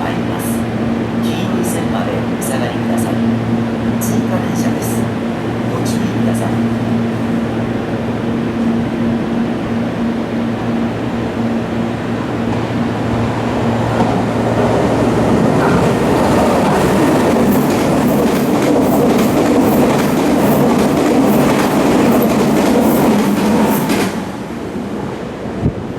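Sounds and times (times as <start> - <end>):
electric train passing: 0.0 - 25.9
train wheels clacking over rail joints: 15.6 - 24.3.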